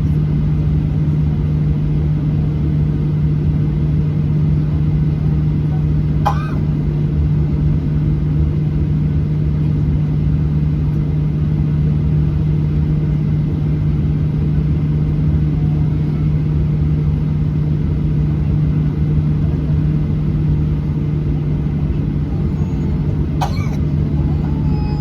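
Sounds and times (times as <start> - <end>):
airplane cabin drone: 0.0 - 25.0.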